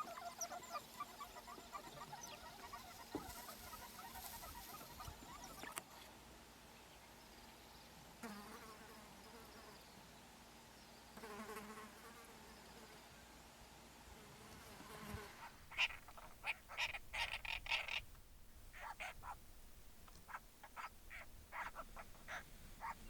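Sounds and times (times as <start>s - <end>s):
insect buzzing past: 1.0s - 6.0s, 8.2s - 9.9s, 11.2s - 13.1s, 14.0s - 18.1s.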